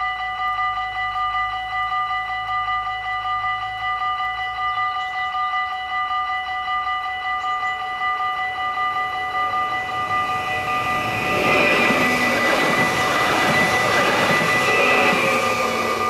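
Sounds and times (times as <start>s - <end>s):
electric train passing: 0.0s - 16.0s
level crossing bell ringing: 0.0s - 16.0s.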